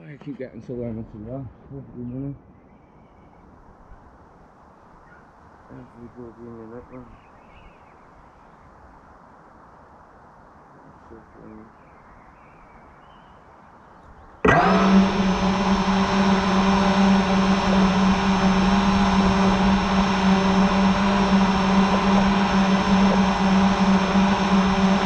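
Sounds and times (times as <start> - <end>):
drone motors whirring: 14.4 - 25.0.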